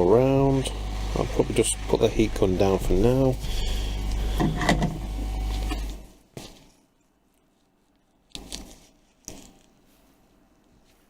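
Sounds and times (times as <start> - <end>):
heat gun blowing: 0.0 - 6.0.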